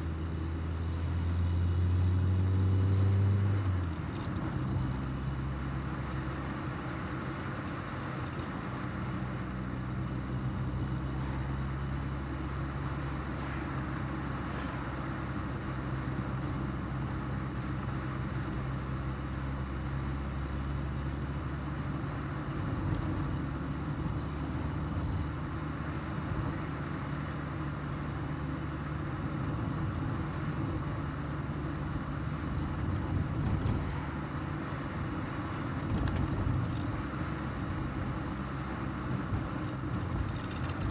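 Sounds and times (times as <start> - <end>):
tyre and road noise: 32.1 - 40.9.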